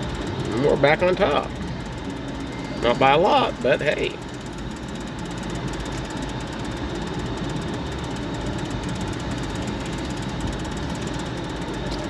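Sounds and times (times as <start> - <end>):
faint machine tones: 0.0 - 12.0
casino background din: 0.3 - 5.2.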